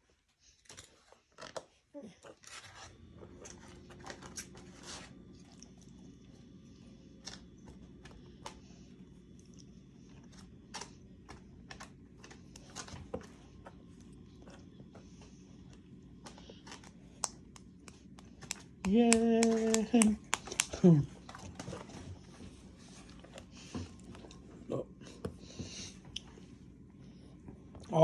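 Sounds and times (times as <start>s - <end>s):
steady low hum: 1.9s - 28.0s
child eating clicks and taps: 10.3s - 22.0s.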